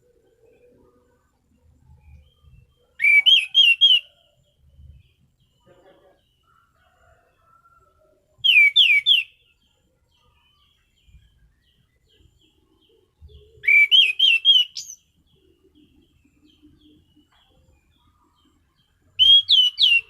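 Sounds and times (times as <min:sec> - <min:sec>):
thrush singing whistled notes: 0:00.0 - 0:05.1, 0:08.4 - 0:09.6, 0:13.2 - 0:16.0, 0:19.1 - 0:20.0.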